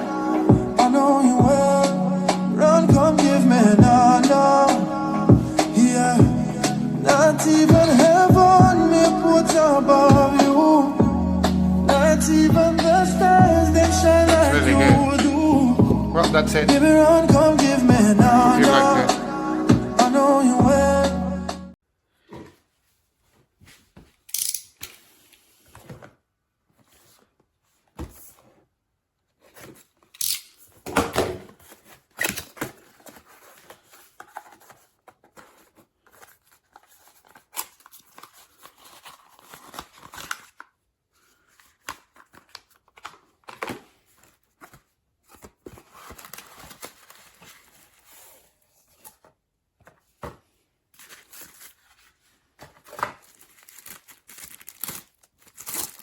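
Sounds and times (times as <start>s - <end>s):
packaging crinkling and rustling: 29.4s - 50.2s, 50.9s - 56.0s.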